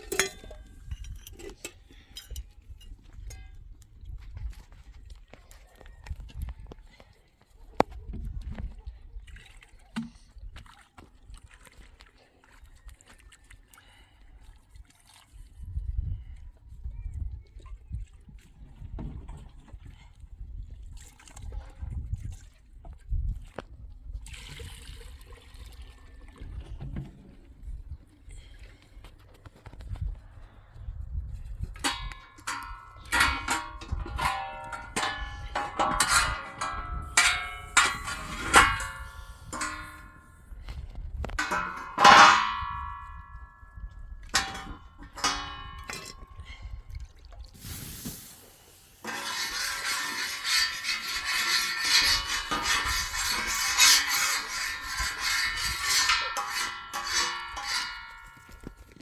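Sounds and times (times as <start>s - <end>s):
hammer clanging on metal: 31.9s - 40.3s, 41.4s - 43.6s
tool scraping hard surface: 32.4s - 40.3s, 47.6s - 58.8s.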